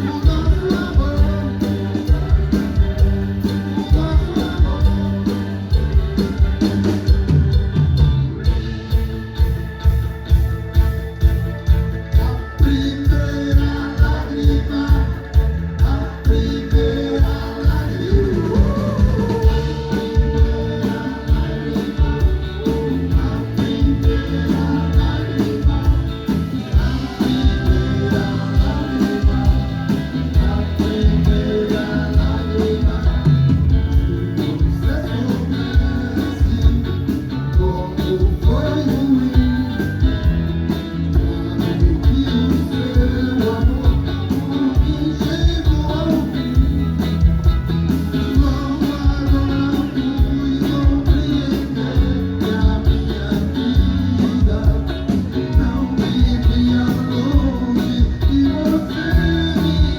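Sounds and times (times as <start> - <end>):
person singing: 0.0 - 7.4, 11.6 - 59.9
live band playing: 0.0 - 59.9
steady drum beat: 0.0 - 59.9.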